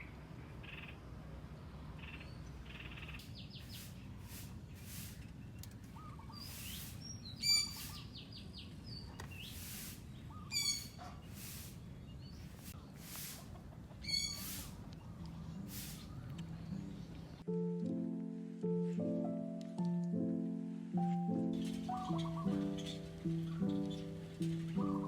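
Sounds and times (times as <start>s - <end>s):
wild birds calling and chirping: 0.0s - 17.4s, 21.6s - 25.0s
harsh bird call: 6.0s - 8.1s, 9.4s - 11.7s, 14.0s - 14.8s, 21.6s - 24.2s.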